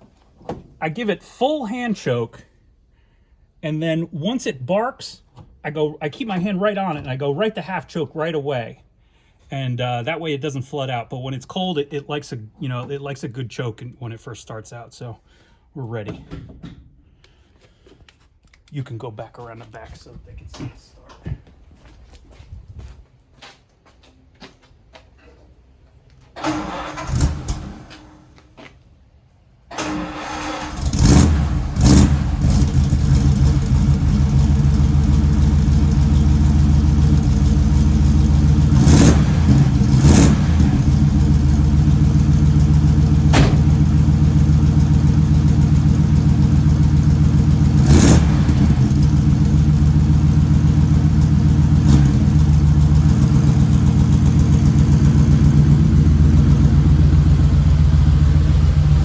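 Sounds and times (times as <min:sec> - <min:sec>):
car engine starting and idling: 0:26.3 - 0:28.5, 0:29.7 - 0:59.0.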